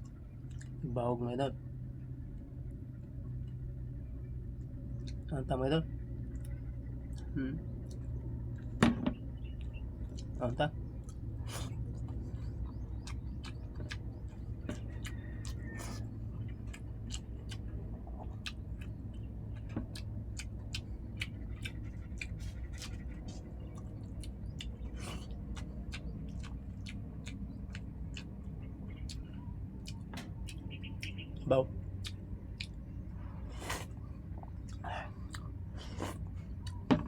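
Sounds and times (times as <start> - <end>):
low steady hum: 0.0 - 37.0
person chewing with lip smacks: 0.4 - 0.8, 9.4 - 36.9.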